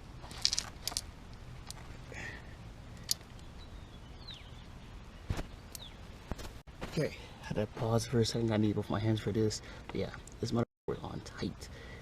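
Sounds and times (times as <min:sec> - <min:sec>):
small bird chirping: 0:03.0 - 0:06.2.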